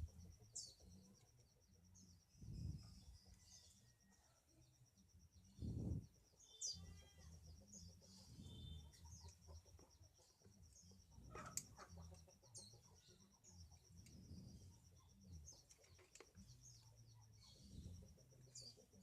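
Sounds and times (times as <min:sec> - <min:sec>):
faint bird calls: 0:05.6 - 0:19.0.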